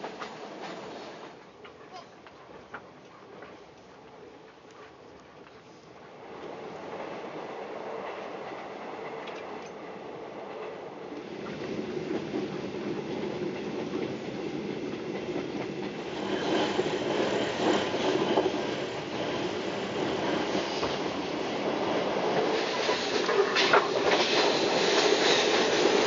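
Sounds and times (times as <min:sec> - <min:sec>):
train wheels rumbling on track: 0:00.0 - 0:03.6, 0:06.2 - 0:26.0
clacks over rail joints: 0:22.3 - 0:26.0.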